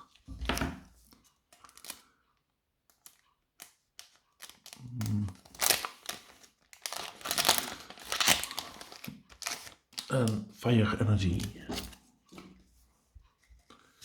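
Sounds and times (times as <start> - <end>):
foil wrapper crinkling and tearing: 1.5 - 2.1, 2.9 - 10.4.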